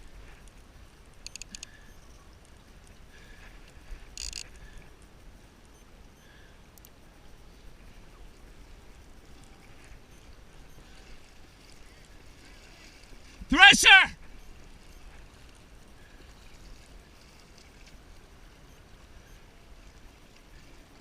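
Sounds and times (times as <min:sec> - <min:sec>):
open-water low rumble: 0:00.0 - 0:21.0.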